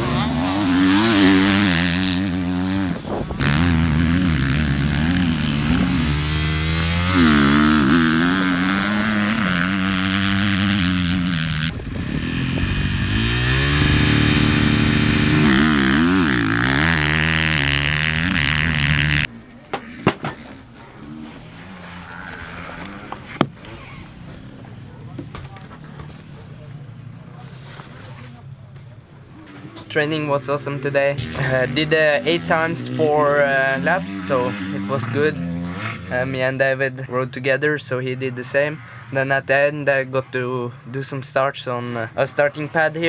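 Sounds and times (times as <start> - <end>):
motocross bike engine revving: 0.0 - 27.5, 29.6 - 36.7.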